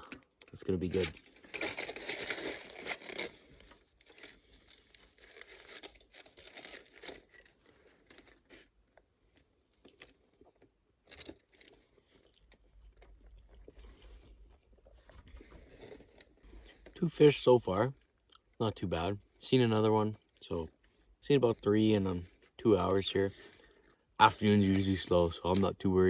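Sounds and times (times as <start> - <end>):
plastic packaging crinkling: 0.0 - 13.9
person chewing: 9.3 - 15.0.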